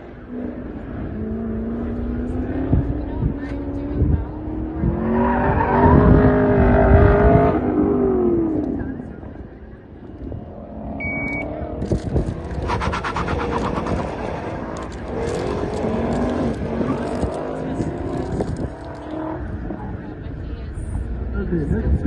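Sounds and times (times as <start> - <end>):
car engine revving hard: 12.4 - 19.9.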